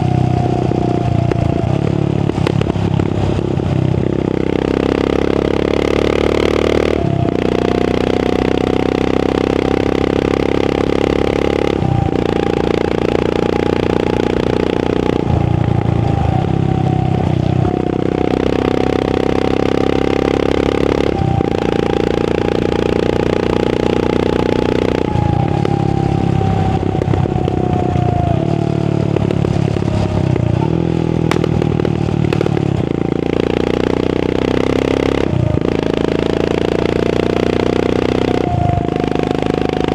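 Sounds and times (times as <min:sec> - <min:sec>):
exhaust crackle: 0:00.0 - 0:39.9
motorcycle engine thumping: 0:29.0 - 0:33.1.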